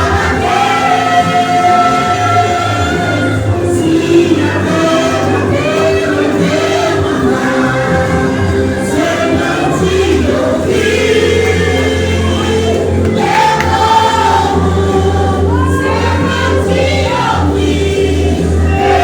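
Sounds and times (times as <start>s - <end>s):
gospel group singing: 0.0s - 19.0s
instrumental backing with bass: 0.0s - 19.0s.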